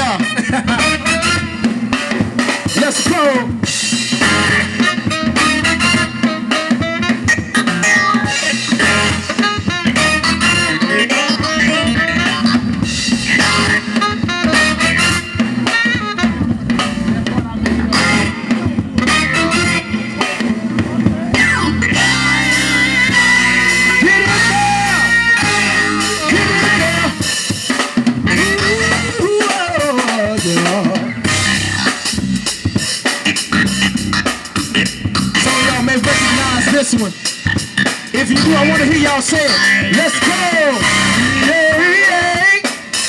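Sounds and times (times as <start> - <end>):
live band playing funk groove: 0.0 - 43.0
sustained gliding instrumental lines: 21.3 - 29.4.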